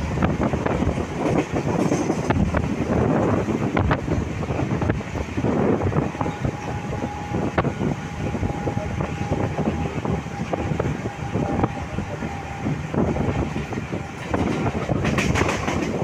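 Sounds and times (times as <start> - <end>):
wheels clacking over rail joints: 0.0 - 4.6, 13.4 - 16.0
train wheels rumbling on track: 0.0 - 16.0.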